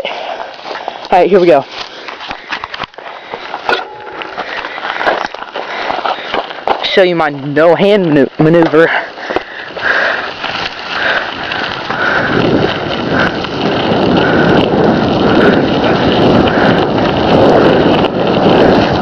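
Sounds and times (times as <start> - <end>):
bicycle tyre noise: 0.0 - 19.0
wind buffeting microphone: 1.4 - 19.0.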